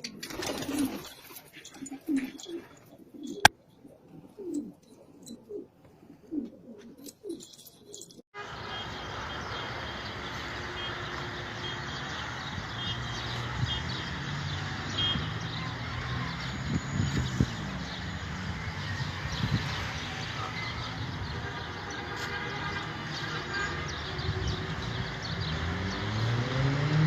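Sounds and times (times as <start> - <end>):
pigeons cooing: 0.0 - 8.2.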